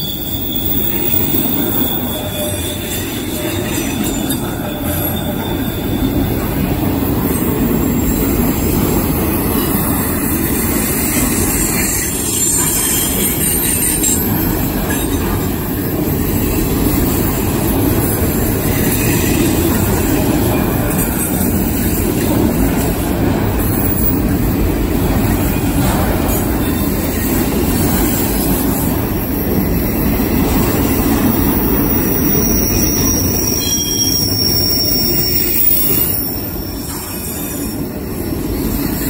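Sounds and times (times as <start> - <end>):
freight cars rolling on rails: 0.0 - 39.0.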